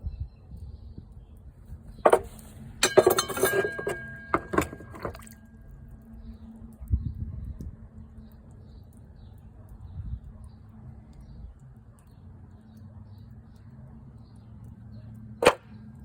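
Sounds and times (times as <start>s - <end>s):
hard clinking knocks: 2.0s - 5.4s.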